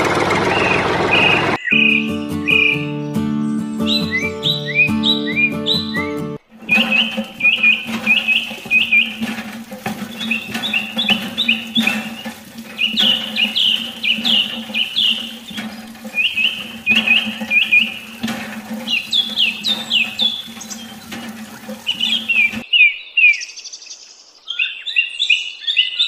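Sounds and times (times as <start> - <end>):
small birds chirping: 0.5 - 26.0
water trickling into plastic tank: 6.4 - 22.6.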